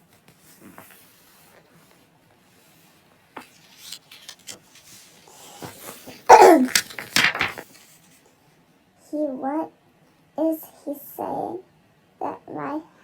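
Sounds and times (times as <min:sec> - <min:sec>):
toy figures clicking on hard surface: 0:06.3 - 0:07.6.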